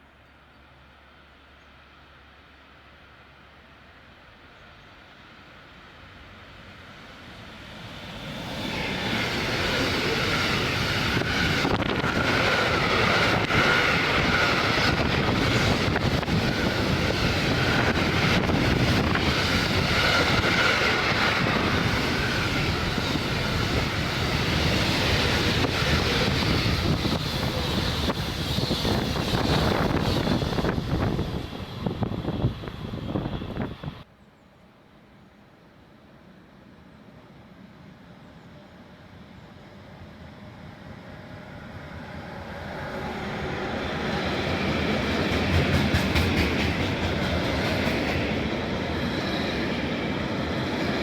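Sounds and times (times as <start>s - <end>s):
freight train wheels rolling: 7.4s - 34.1s, 41.7s - 51.0s.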